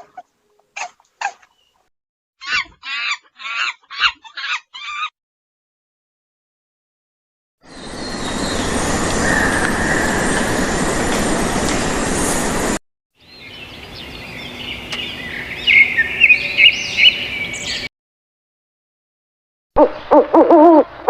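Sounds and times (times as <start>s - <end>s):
bird chirping and trilling: 13.2s - 17.9s.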